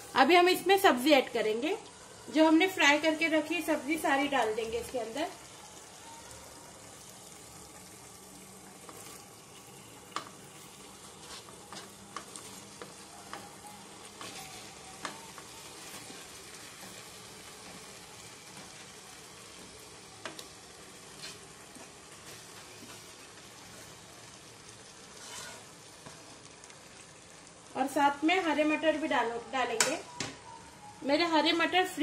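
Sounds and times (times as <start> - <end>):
gravy sizzling in a pot: 0.0 - 32.0.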